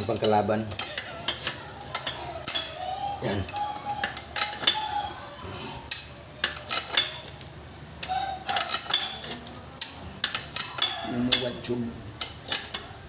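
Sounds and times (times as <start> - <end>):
steel hand tools clinking on metal: 0.0 - 2.8, 4.0 - 5.0, 5.9 - 7.4, 8.0 - 13.0.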